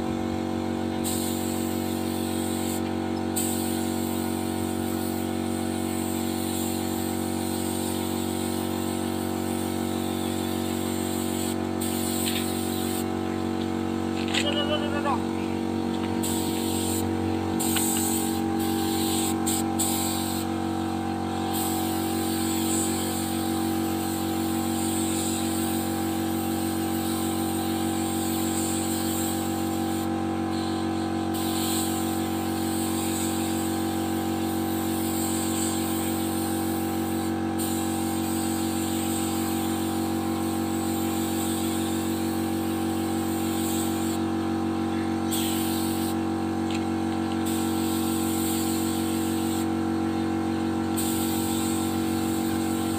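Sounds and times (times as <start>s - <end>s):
machine hum: 0.0s - 3.4s, 9.5s - 22.1s
spray-painting gun hissing: 1.0s - 13.1s, 16.0s - 44.3s, 45.2s - 52.9s.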